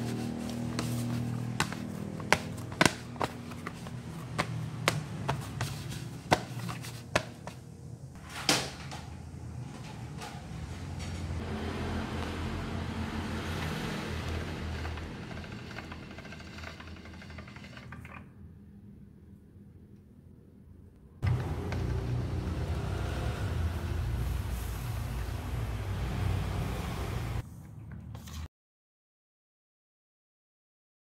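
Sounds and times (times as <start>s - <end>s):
dough slapping in plastic basin: 0.0s - 7.6s
pasta machine whirring: 13.4s - 18.3s.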